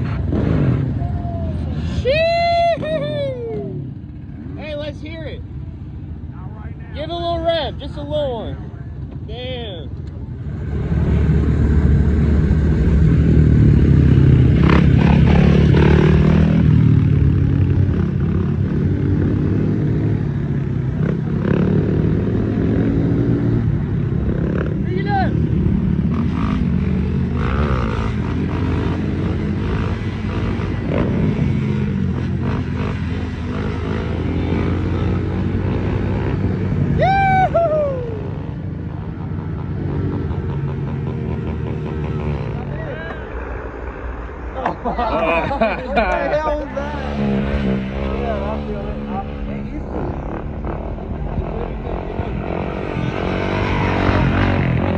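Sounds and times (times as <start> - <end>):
motorcycle engine revving: 0.0 - 1.1, 10.3 - 54.9
high-pitched whoop: 1.0 - 3.9, 36.9 - 38.5.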